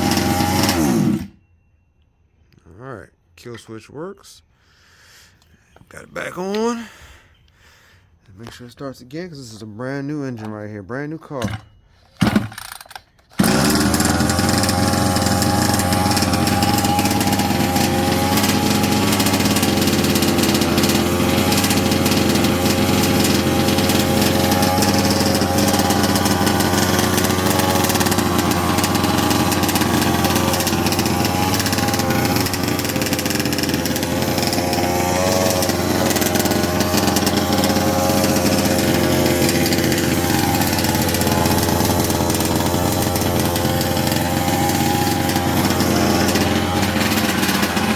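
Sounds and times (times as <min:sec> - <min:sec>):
two-stroke engine idling: 0:13.4 - 0:47.9.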